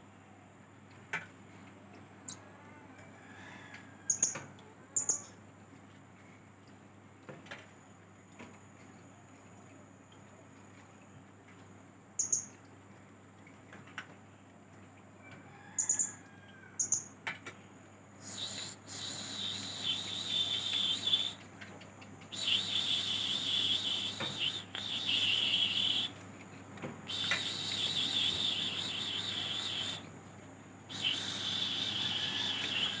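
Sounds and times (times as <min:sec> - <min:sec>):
parrot chirping and twittering: 0:18.2 - 0:21.4, 0:22.3 - 0:26.2, 0:27.1 - 0:30.1, 0:30.9 - 0:33.0.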